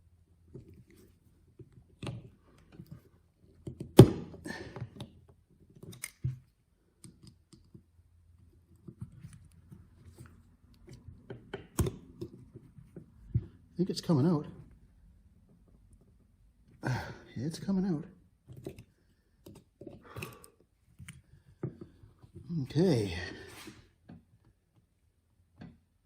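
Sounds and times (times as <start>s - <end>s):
hand tool clicks and metal taps: 5.0s - 6.4s.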